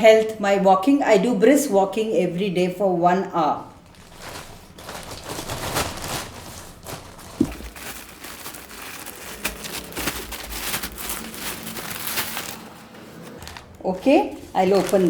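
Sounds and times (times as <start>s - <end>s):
packaging crinkling and rustling: 3.8s - 15.0s.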